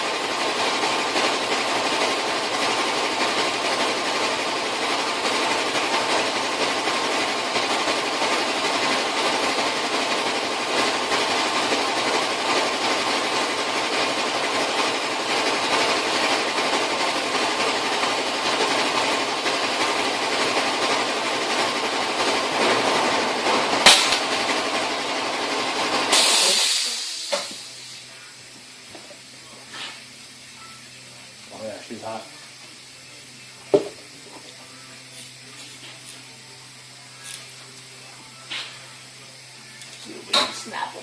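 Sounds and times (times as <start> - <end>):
torch flame hissing: 24.8 - 41.0.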